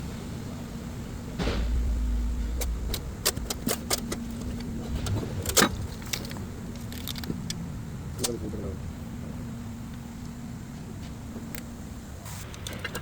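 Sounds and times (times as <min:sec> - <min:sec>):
engine running: 0:00.7 - 0:08.1.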